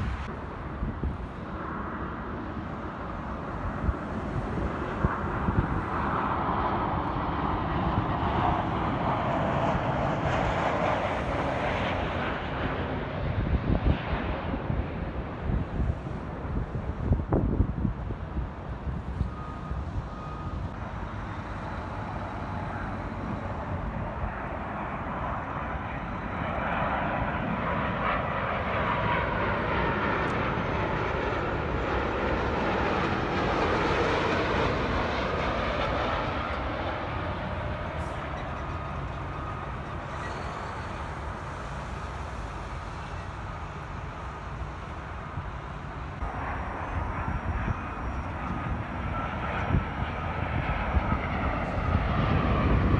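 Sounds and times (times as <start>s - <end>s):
jet airliner passing by: 0.0s - 52.9s.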